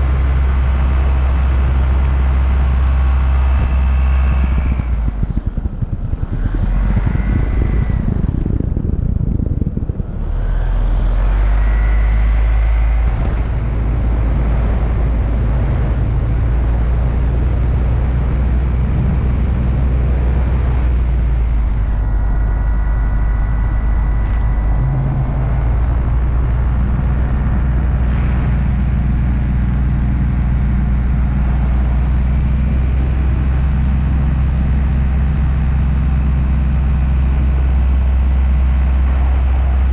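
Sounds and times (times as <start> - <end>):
paramotor engine and propeller: 0.0 - 39.9.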